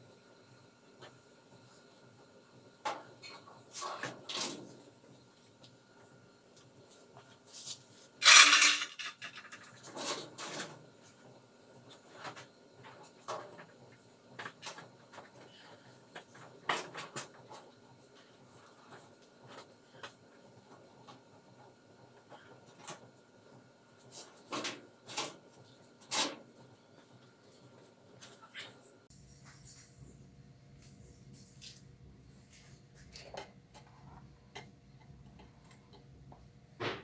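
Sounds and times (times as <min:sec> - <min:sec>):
metallic clatter and scrape: 0:07.6 - 0:10.8
tools clinking and knocking: 0:08.2 - 0:09.6.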